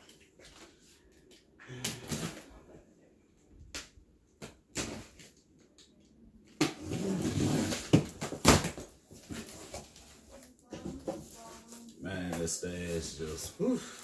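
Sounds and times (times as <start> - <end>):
cardboard boxes being handled: 6.9 - 11.6.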